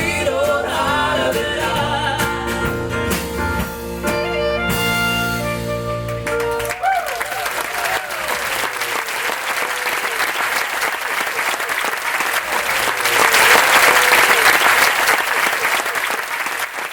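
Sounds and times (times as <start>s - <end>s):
audience applauding: 6.0s - 16.9s
cheering whoops: 6.6s - 16.3s.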